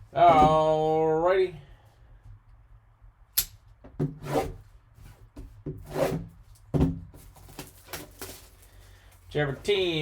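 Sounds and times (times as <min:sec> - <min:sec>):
cardboard packaging scraping: 0:07.2 - 0:09.0.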